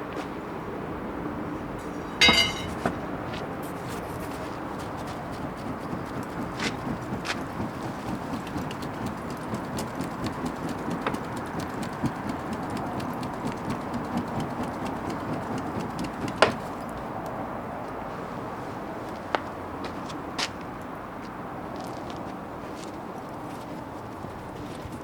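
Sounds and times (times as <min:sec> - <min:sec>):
wood bonfire crackling: 0:03.8 - 0:17.4.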